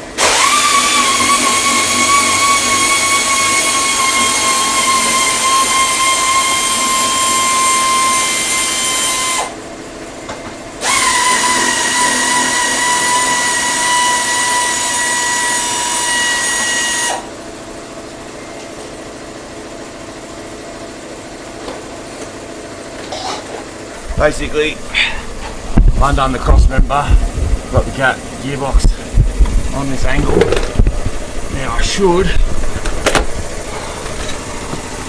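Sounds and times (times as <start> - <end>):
power tool motor whining: 0.2 - 9.6, 10.8 - 17.3, 28.7 - 35.0.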